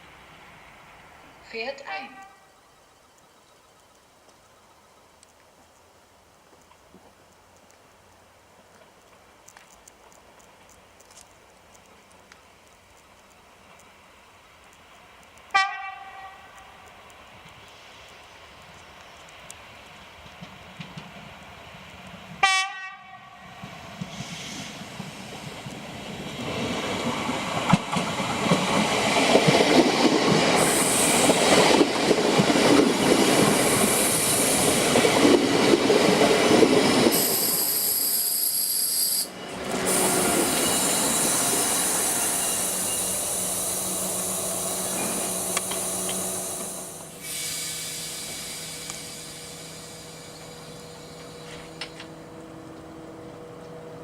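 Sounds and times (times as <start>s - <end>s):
train passing with clattering wheels: 0.0s - 54.0s
train horn blast: 15.5s - 16.6s, 22.4s - 23.6s.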